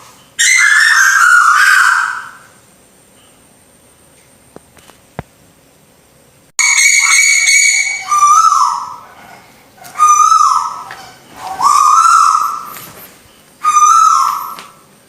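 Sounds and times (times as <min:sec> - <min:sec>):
whistled bird calls: 0:00.4 - 0:02.6, 0:06.6 - 0:14.9.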